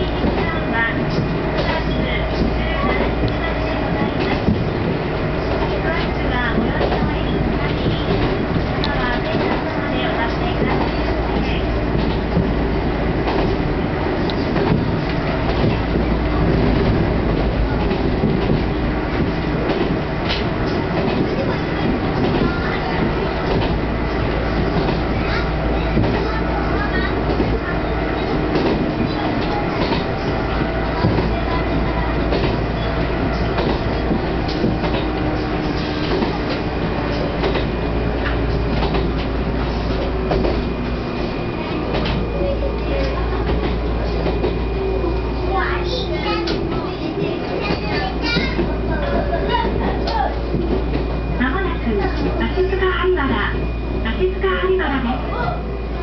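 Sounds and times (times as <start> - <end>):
train running rumble: 0.0 - 56.0
wheel clicks over rails: 13.2 - 44.6.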